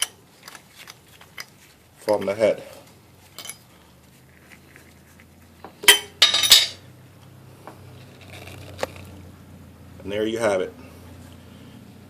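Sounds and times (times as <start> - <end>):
metal tools clinking: 3.2 - 3.7, 5.8 - 6.8.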